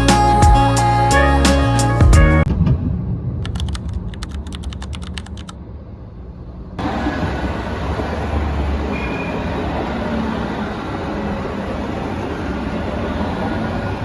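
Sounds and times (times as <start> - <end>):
background music: 0.0 - 2.5
rushing noise with low rumble: 2.4 - 11.4.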